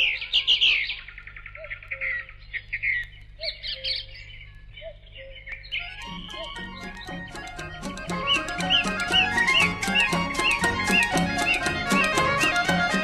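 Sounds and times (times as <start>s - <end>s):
small birds chirping and twittering: 0.0s - 13.0s
music: 5.9s - 13.0s.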